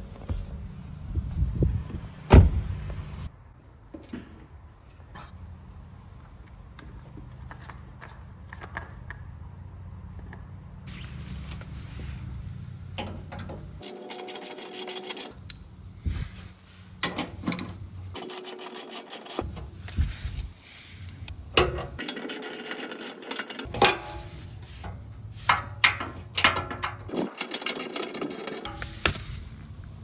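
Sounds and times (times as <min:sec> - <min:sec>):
metallic knocks and scrapes: 0:21.4 - 0:29.3.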